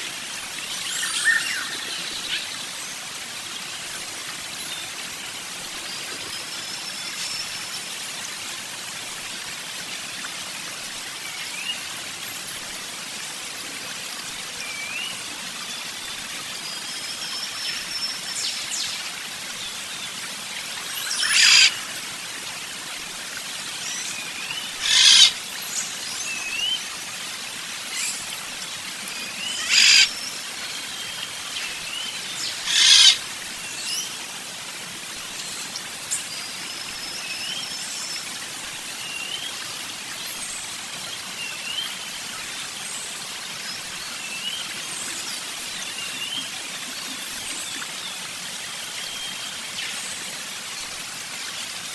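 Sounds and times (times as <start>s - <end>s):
birds chirping: 24.5s - 25.3s, 29.4s - 30.1s, 32.0s - 33.2s
harsh bird calls: 24.7s - 25.3s, 29.5s - 30.1s, 32.5s - 33.2s.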